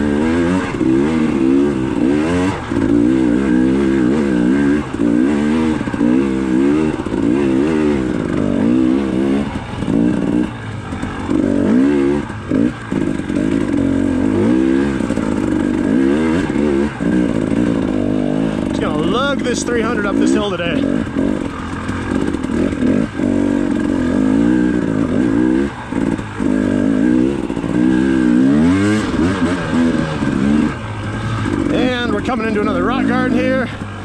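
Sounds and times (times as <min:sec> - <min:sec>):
two-stroke dirt bike engine revving: 0:00.0 - 0:34.0.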